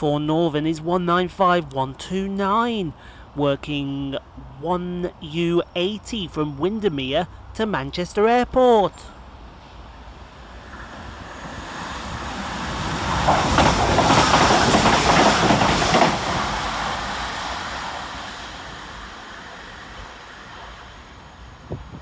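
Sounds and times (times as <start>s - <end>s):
train passing at speed: 9.0s - 22.0s.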